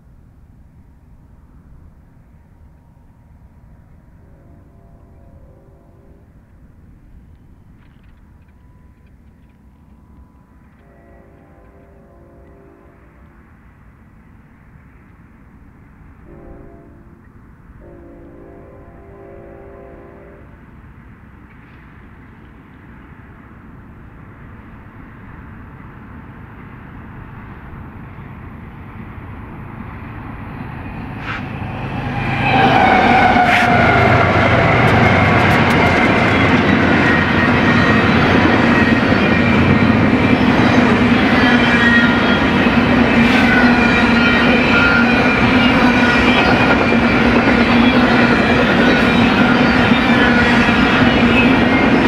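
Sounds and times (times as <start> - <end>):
freight train rumble: 0.0 - 52.0
high-pitched wheel squeals: 30.9 - 39.8.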